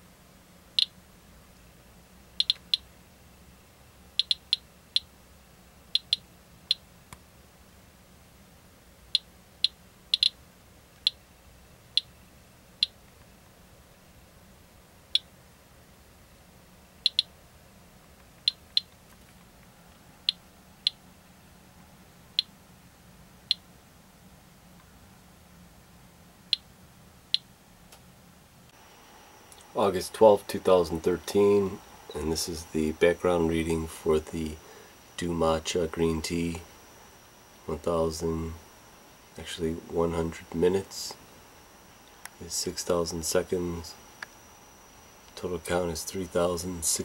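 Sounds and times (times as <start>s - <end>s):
geiger counter clicking: 2.4s - 2.9s, 4.2s - 5.1s, 5.9s - 6.8s, 9.1s - 10.4s, 17.0s - 17.3s.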